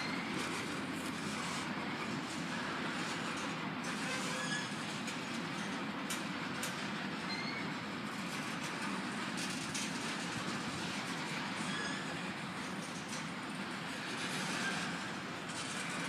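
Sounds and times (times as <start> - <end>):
high wheel squeaks: 0.0 - 4.9, 7.2 - 7.8, 11.2 - 16.0
freight train wheels rumbling: 0.0 - 16.0.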